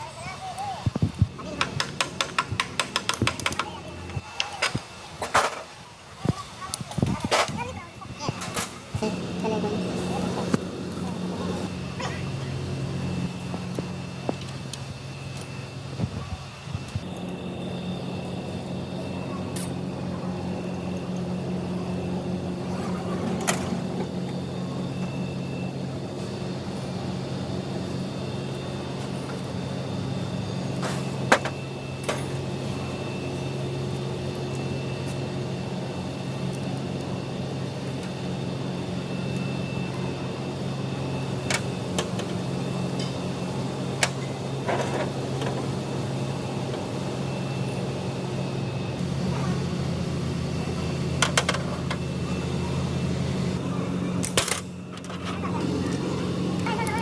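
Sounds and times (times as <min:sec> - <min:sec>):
motor running: 0:07.2 - 0:57.0.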